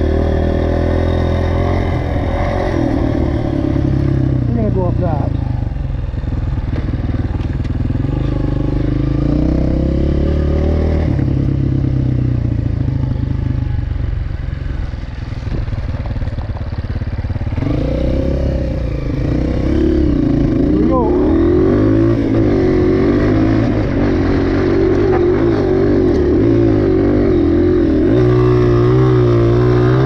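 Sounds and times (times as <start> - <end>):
dirt bike engine revving: 0.0 - 5.7, 7.8 - 13.4, 17.4 - 30.0.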